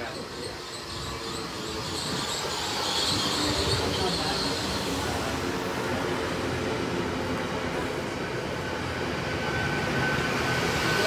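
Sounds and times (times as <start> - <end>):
thin high wheel squeal: 0.0 - 5.2
train rumbling on rails: 0.0 - 11.0.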